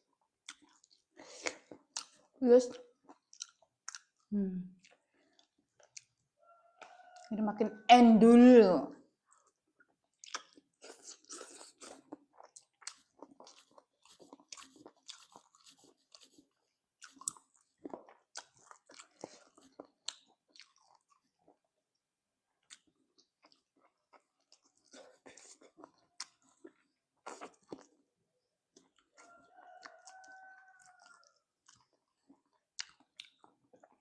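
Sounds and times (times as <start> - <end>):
chewing and biting crackles: 0.4 - 7.3, 9.2 - 21.7, 22.6 - 28.1, 28.7 - 34.0.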